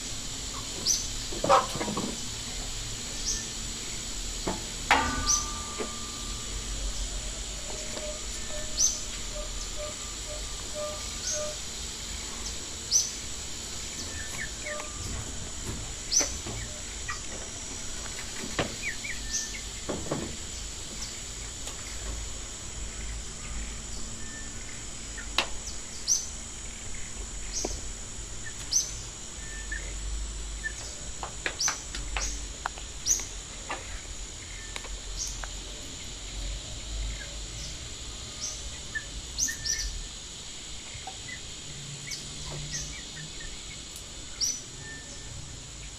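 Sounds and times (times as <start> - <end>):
high-pitched buzz: 0.0 - 30.8
birds chirping: 3.1 - 15.2, 15.9 - 17.6, 18.8 - 19.9, 30.6 - 40.0, 40.8 - 45.9.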